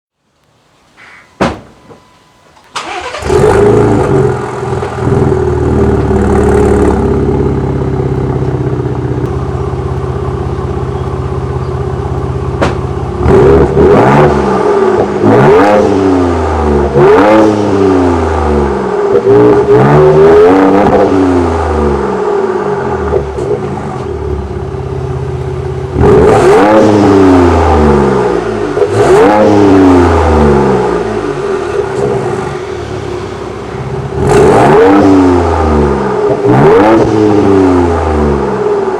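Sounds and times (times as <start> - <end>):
engine starting: 2.6 - 4.4
engine idling: 2.7 - 13.6, 23.0 - 29.1, 29.9 - 36.2
engine revving in throttle blips: 2.7 - 38.9.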